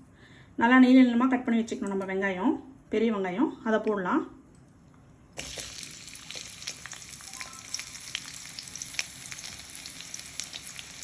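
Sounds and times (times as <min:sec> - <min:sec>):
oil crackles and pops: 0:05.4 - 0:11.0
onions sizzling in hot oil: 0:05.4 - 0:11.0.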